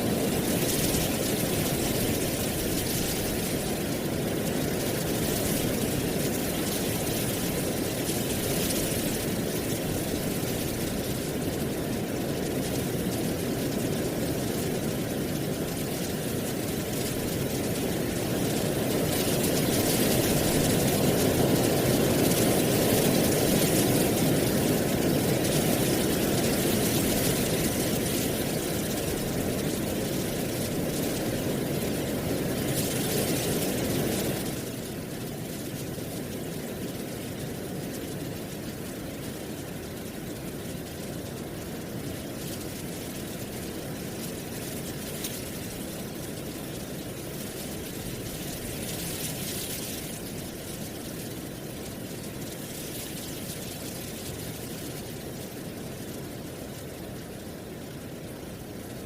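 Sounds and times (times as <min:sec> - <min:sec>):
steady wind: 0:00.0 - 0:59.0
dry leaves rustling: 0:42.2 - 0:55.0.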